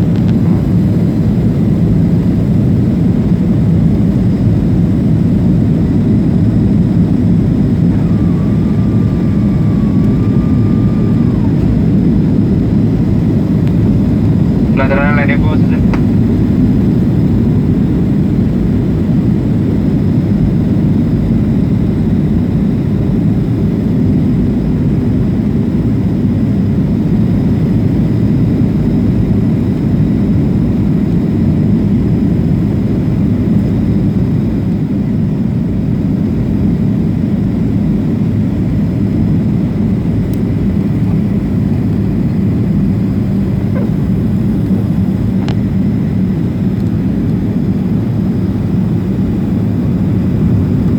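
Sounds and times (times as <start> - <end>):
airplane cabin jet engine noise: 0.0 - 50.9.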